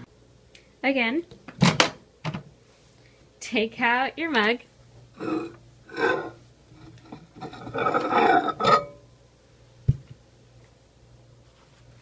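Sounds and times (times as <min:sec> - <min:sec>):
mug scraping and handling: 0:05.2 - 0:09.0.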